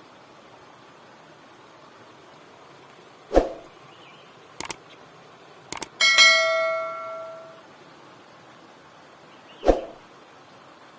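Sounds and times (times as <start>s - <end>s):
short clicks: 4.6s - 4.8s, 5.7s - 6.0s
bell-like metallic ring: 6.0s - 7.6s.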